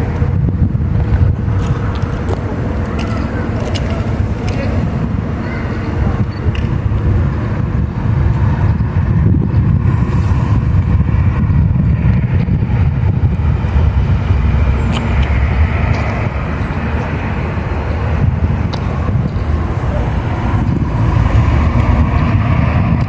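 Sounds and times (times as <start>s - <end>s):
train rumbling past: 0.0s - 23.0s
sharp clicks: 14.9s - 16.2s.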